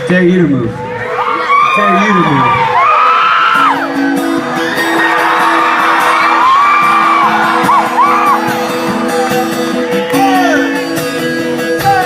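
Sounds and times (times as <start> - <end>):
crowd whooping and shouting: 0.7 - 11.0
live rock band playing: 3.3 - 12.0.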